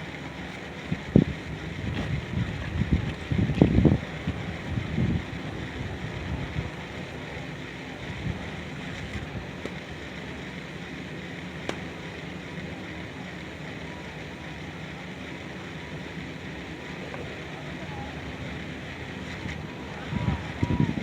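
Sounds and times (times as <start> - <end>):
wind buffeting microphone: 0.0 - 9.6, 17.0 - 21.0
outdoor ambient hiss: 0.0 - 21.0.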